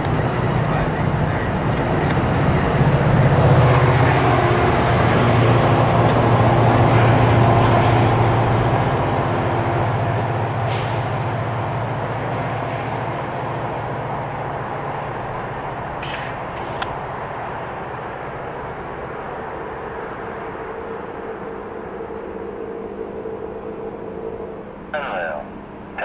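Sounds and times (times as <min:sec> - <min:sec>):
diesel locomotive engine drone: 0:00.0 - 0:26.0
train rumble: 0:00.0 - 0:26.0.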